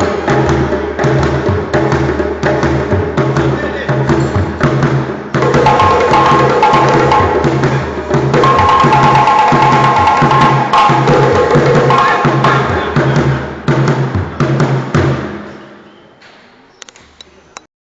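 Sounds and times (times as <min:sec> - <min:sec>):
hand drumming: 0:00.0 - 0:13.3.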